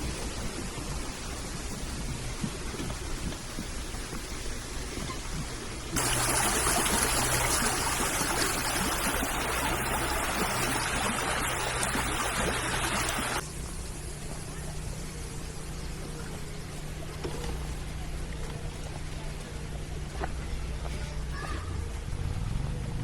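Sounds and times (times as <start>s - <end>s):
rushing stream water: 5.8s - 13.4s
steady low hum: 6.0s - 21.2s.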